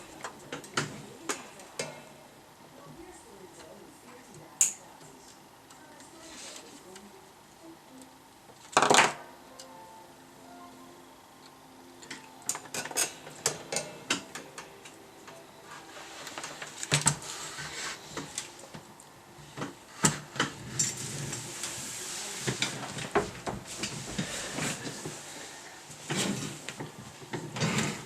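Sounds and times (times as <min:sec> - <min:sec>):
faint hiss: 0:09.3 - 0:26.9.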